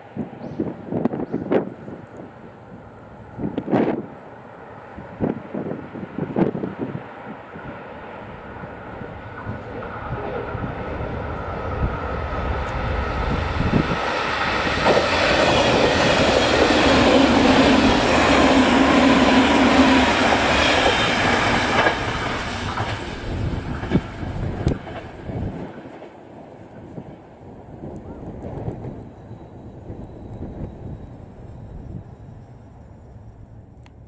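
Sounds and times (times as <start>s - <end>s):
electric train passing on rails: 0.0s - 34.0s.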